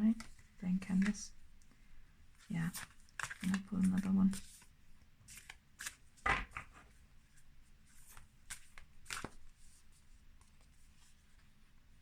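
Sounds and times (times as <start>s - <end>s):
cards sliding and rustling: 2.6s - 4.7s, 5.3s - 6.9s, 7.9s - 9.8s.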